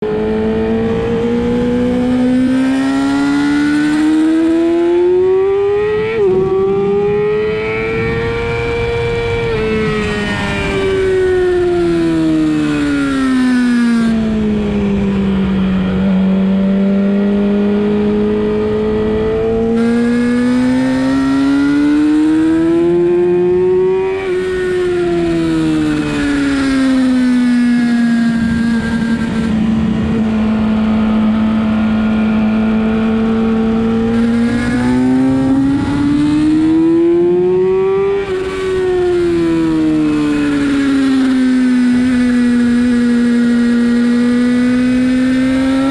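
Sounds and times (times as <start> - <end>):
motorcycle engine revving: 0.0 - 45.9
wind rush: 5.7 - 13.3, 24.2 - 43.8.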